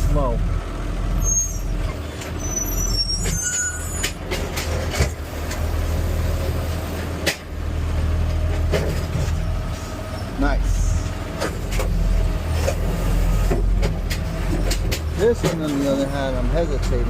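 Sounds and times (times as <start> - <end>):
garbage truck engine running: 0.0 - 17.0
short high squeaks: 1.2 - 4.2.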